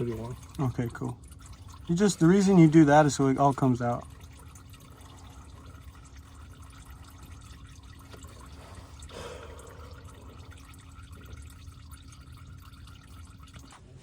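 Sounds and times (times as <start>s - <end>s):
oil trickling and dripping: 0.0s - 14.0s.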